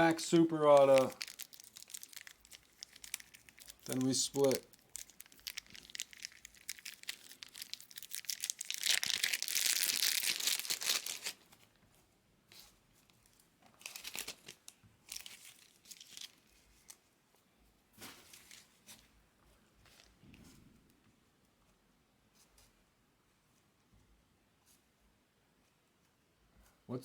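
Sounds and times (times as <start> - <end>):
wrapper tearing: 0.0 - 11.5, 13.8 - 17.0
wrappers crinkling: 0.0 - 11.6, 13.2 - 17.0.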